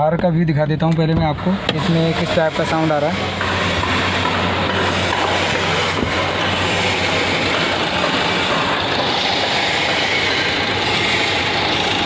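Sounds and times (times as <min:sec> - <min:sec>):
diesel engine idling with knock: 0:00.0 - 0:12.0.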